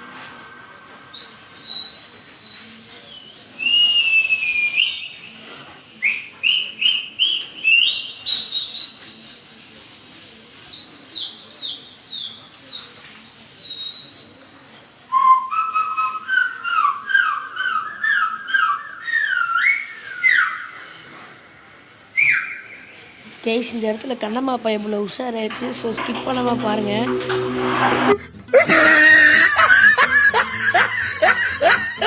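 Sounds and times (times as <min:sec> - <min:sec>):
high swooping whistles: 0:00.4 - 0:05.2.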